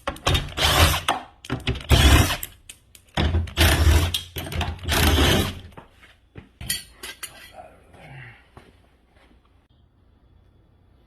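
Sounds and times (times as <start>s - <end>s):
loud rasping bursts: 1.8s - 2.5s, 4.8s - 5.6s.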